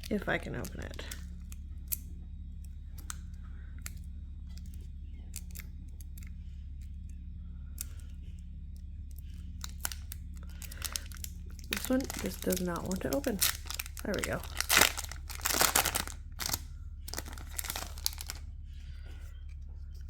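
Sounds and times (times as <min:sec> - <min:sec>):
foil pack crinkling: 0:00.0 - 0:01.6, 0:09.2 - 0:18.4
steady low hum: 0:00.0 - 0:20.0.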